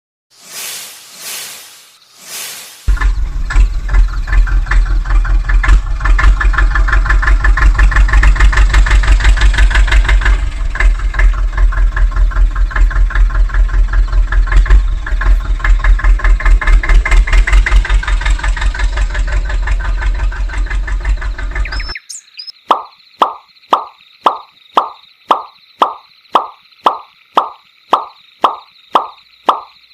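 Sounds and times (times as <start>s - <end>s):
tractor diesel engine idling: 2.9s - 21.9s.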